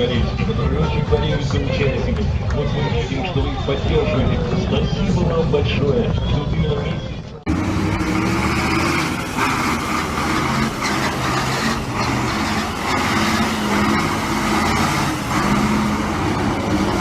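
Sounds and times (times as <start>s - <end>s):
road and tyre noise: 0.0s - 17.0s
truck engine under load: 7.4s - 17.0s.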